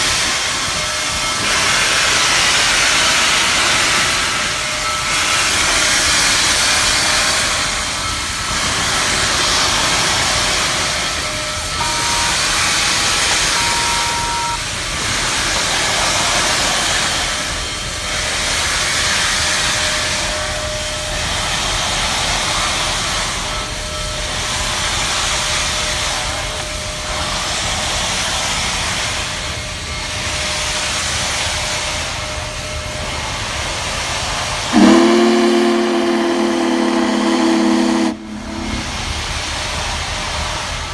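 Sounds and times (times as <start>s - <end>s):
steam locomotive hiss: 0.0s - 40.9s
steam whistle: 0.0s - 40.9s.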